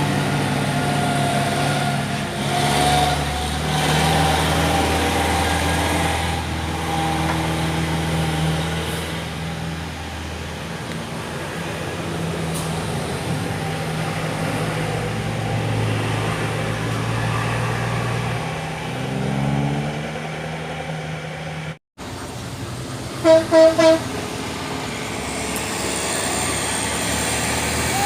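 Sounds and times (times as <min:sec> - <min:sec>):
diesel truck engine under load: 0:00.0 - 0:28.0
truck horn toots: 0:23.2 - 0:24.2.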